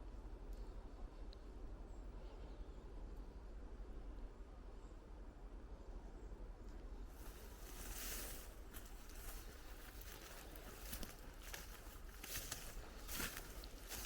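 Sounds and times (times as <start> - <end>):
surface crunching under wheels: 7.2 - 14.0.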